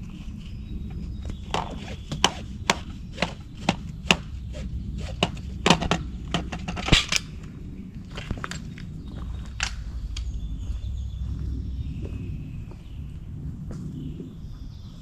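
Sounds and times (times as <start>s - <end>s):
steady low hum: 0.0s - 15.0s
camping gear knocking and clattering: 1.2s - 7.3s.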